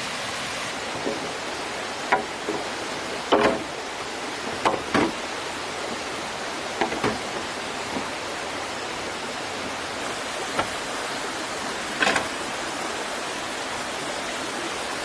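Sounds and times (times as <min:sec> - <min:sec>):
stream water flowing: 0:00.0 - 0:15.0
bamboo poles knocking: 0:00.9 - 0:06.0, 0:06.8 - 0:08.2, 0:10.5 - 0:10.8, 0:11.9 - 0:12.4.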